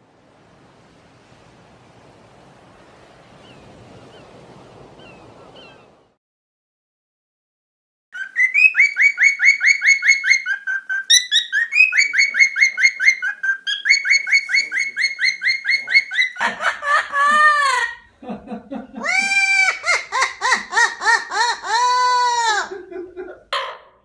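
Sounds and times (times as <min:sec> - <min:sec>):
lower arching parrot call: 0:08.2 - 0:16.4
parrots chirping: 0:08.2 - 0:16.4, 0:23.6 - 0:24.0.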